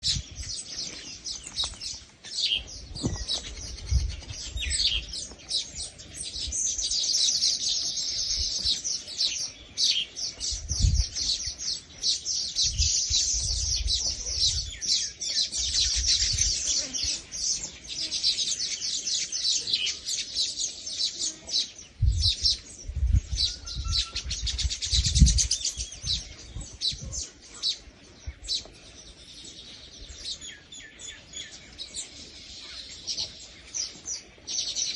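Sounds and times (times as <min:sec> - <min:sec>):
birds chirping in chorus: 0:00.0 - 0:34.9.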